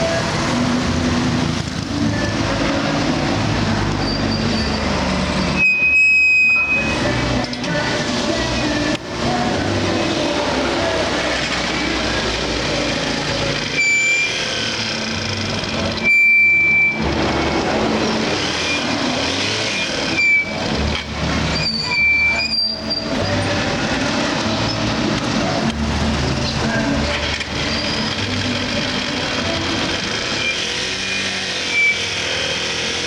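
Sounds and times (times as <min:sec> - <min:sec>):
traffic rumble: 0:00.0 - 0:33.0
short high horn beeps: 0:04.0 - 0:07.1, 0:13.8 - 0:14.5, 0:19.7 - 0:20.6.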